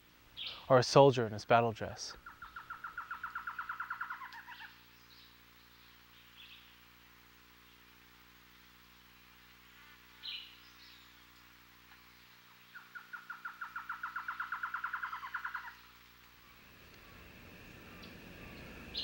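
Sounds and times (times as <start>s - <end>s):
bird rapid trill: 2.2s - 4.7s, 12.7s - 15.9s, 17.0s - 19.0s.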